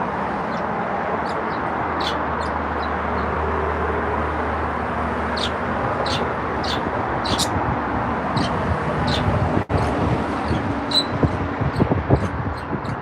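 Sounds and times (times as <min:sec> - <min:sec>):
rushing background noise: 0:00.0 - 0:13.0
pet birds chirping: 0:00.4 - 0:03.4, 0:05.2 - 0:07.6, 0:08.4 - 0:09.4, 0:10.4 - 0:13.0.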